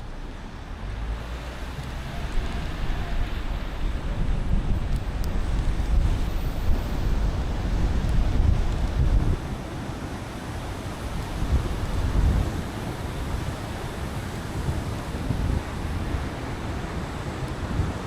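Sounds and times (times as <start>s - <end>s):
low road rumble: 0.0s - 18.0s
tyres hissing on wet road: 0.0s - 18.0s.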